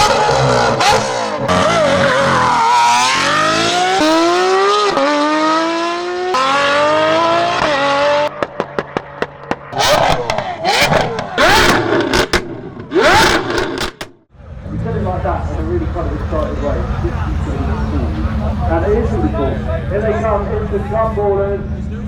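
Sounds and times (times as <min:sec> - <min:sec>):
car engine accelerating hard: 0:00.0 - 0:22.0
exhaust pops and crackles: 0:08.3 - 0:14.2.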